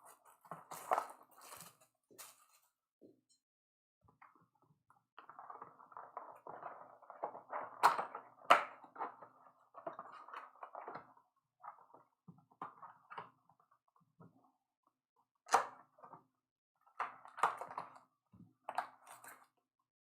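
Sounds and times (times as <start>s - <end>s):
cardboard packs crinkling: 0.1s - 2.6s.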